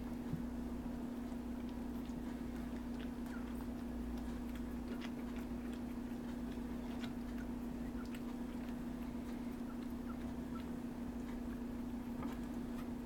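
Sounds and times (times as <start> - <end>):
low electrical hum: 0.0 - 13.0
puppies squirming clicks and scuffs: 1.3 - 13.0.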